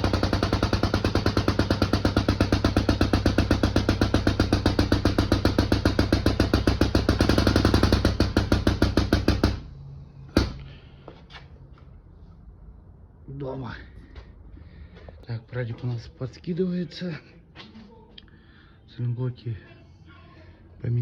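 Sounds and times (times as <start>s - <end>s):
power tool hammering: 0.0s - 10.8s.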